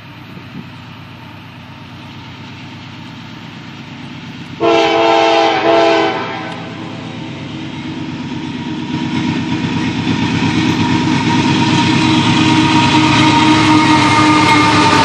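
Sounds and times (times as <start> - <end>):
freight locomotive rumble: 0.0 - 15.0
train air horn chord: 4.6 - 7.0, 12.7 - 15.0.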